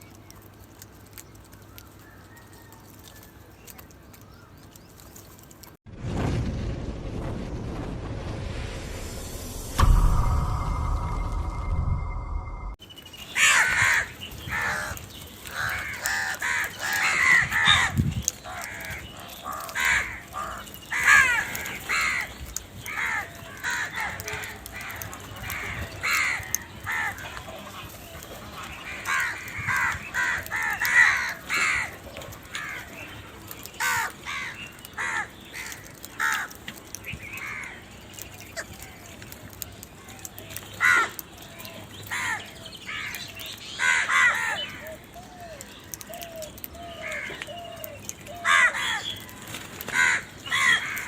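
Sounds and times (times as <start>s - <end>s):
crows cawing: 13.4s - 33.1s, 33.8s - 36.6s, 37.3s - 37.8s, 40.8s - 41.2s, 42.0s - 51.0s.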